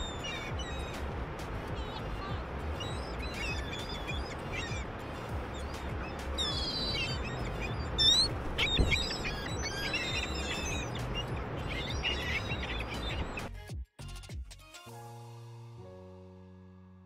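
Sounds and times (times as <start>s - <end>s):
birds chirping and whistling: 0.0s - 1.2s, 1.8s - 13.5s
bird squawk: 2.8s - 4.9s, 5.6s - 13.4s.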